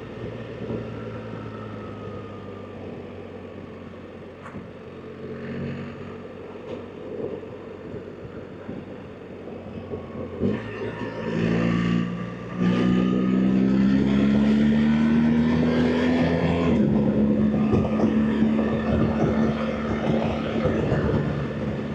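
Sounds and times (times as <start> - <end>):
motorcycle engine accelerating: 10.0 - 21.9.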